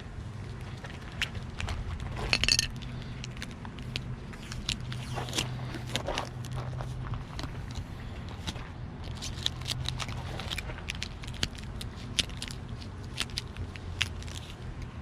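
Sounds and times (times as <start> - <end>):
low steady hum: 0.0 - 15.0
sticker crackling: 2.8 - 15.0.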